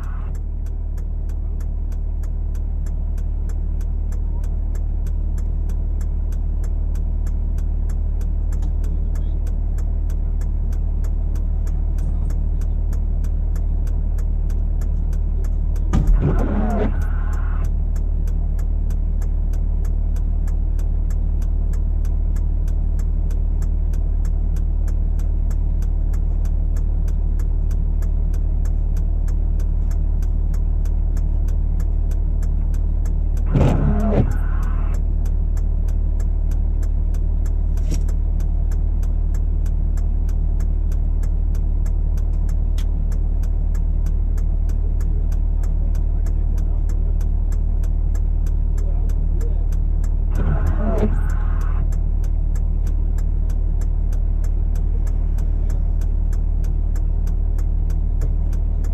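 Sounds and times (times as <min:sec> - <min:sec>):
truck engine idling: 0:00.0 - 0:58.9.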